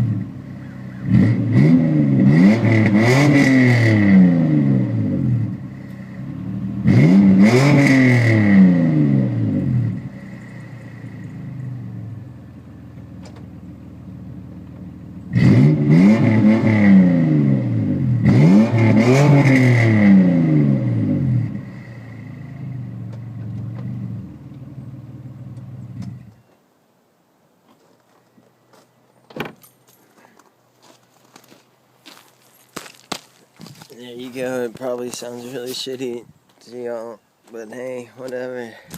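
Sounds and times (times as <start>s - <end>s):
car engine revving and idling: 0.0s - 26.4s.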